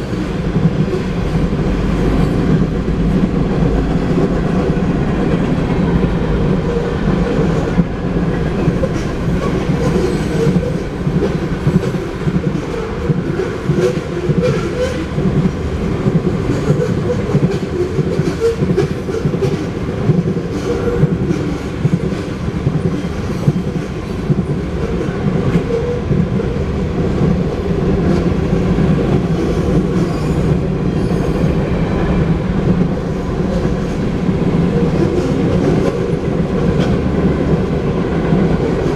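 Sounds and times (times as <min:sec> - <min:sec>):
train wheels clacking over rail joints: 0:00.0 - 0:38.9.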